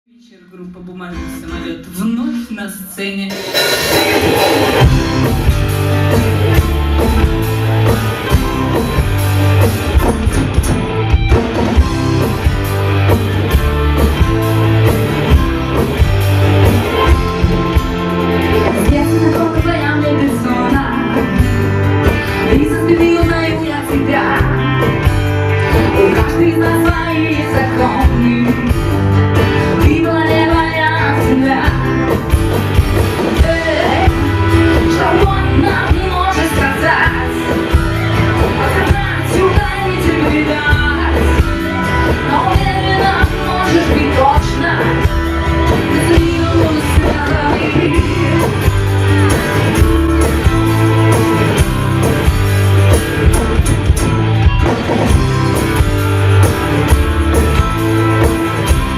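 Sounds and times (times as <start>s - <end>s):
live rock band playing: 0.8s - 58.9s
person singing: 25.6s - 29.1s, 33.3s - 51.6s.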